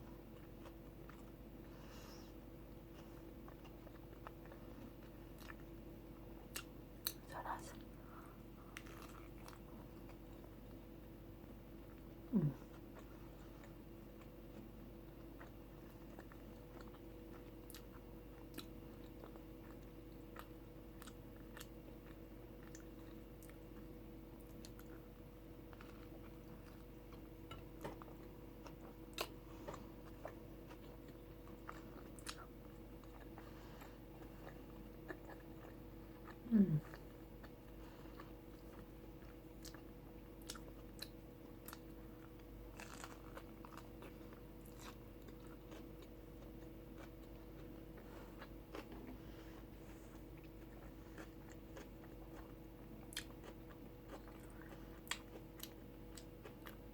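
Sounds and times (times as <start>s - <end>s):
faint steady hum: 0.0s - 56.9s
chewing and biting tacos: 2.4s - 7.3s, 8.6s - 56.9s
person humming mm: 12.3s - 12.8s, 36.4s - 37.0s.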